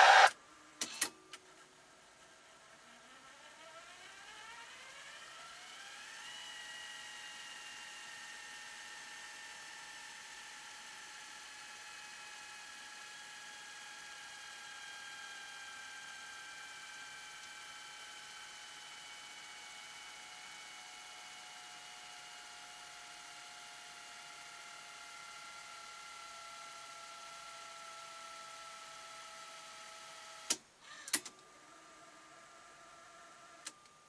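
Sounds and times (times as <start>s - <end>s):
motor whine spinning up: 0.0s - 0.3s.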